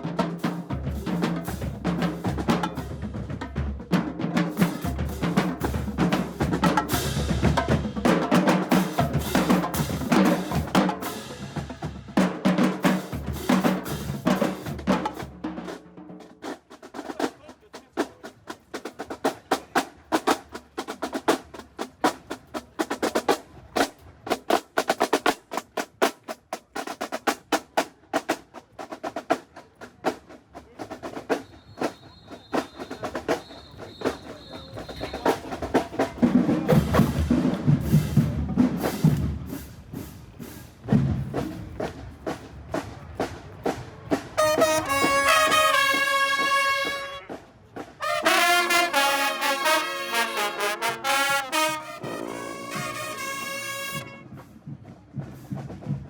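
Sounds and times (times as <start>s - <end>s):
snare drum strokes: 0.0s - 17.4s, 30.9s - 56.0s
brass held chords: 44.4s - 47.4s, 48.0s - 54.3s.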